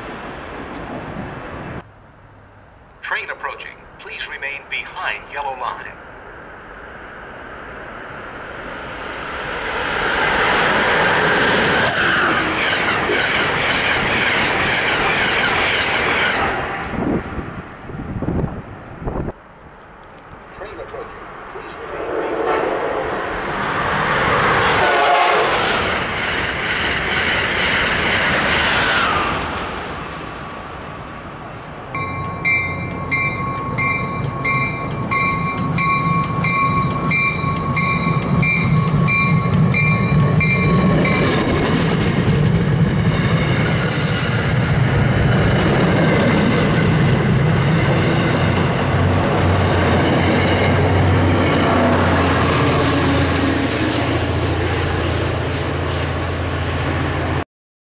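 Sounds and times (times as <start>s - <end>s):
rushing train with falling whine: 0.0s - 1.9s, 3.0s - 19.4s, 20.0s - 57.4s
pulsing high ringing: 32.0s - 41.5s.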